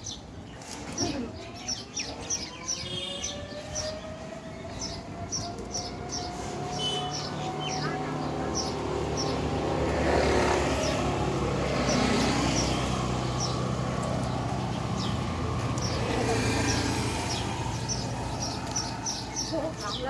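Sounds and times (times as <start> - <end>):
small birds chirping: 0.0 - 20.0
vehicle engine hum: 5.3 - 20.0.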